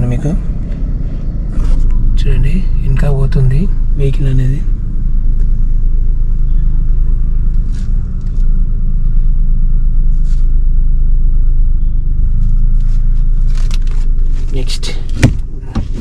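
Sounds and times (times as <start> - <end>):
car engine running low rumble: 0.0 - 16.0.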